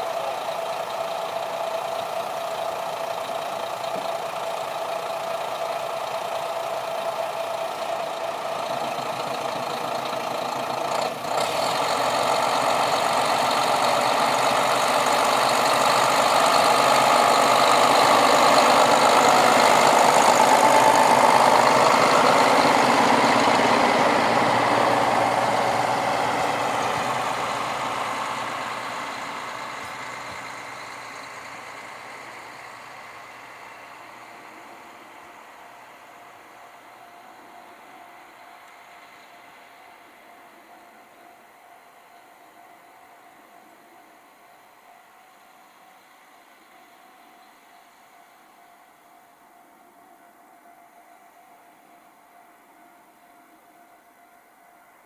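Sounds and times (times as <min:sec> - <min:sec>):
diesel train passing: 0:00.0 - 0:55.0.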